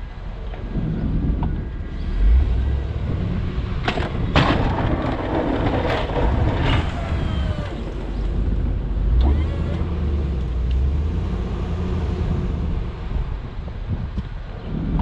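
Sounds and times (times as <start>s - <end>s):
truck engine rumbling: 0.0s - 15.0s
scraping knocks: 3.8s - 8.6s.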